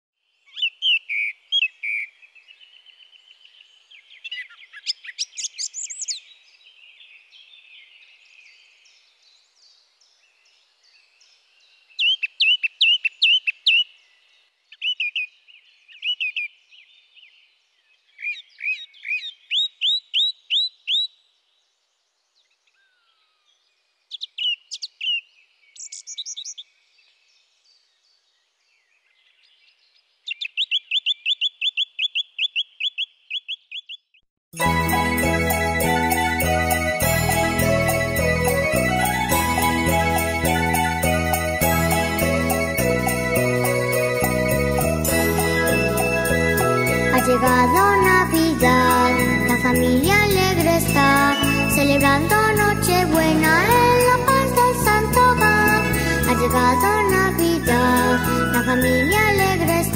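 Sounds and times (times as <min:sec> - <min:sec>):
songbirds chirping and trilling: 0:00.2 - 0:34.3.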